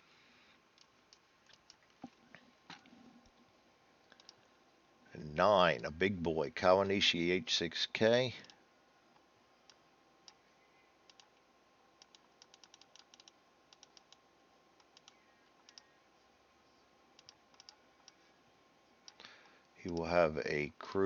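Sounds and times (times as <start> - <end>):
light clicks: 4.1 - 4.5.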